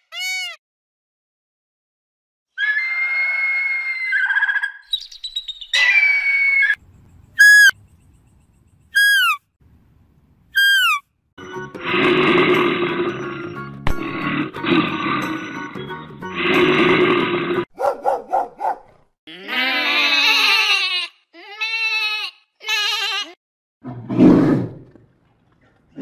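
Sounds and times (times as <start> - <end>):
bird cries: 2.6 - 9.4, 10.6 - 11.0.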